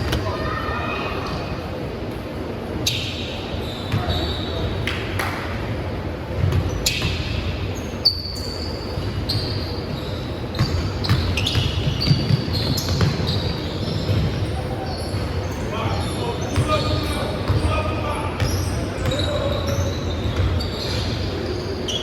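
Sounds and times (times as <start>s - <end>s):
sneaker squeaks on floor: 2.8s - 4.9s, 6.4s - 22.0s
basketball bouncing: 10.6s - 14.4s, 18.4s - 20.6s.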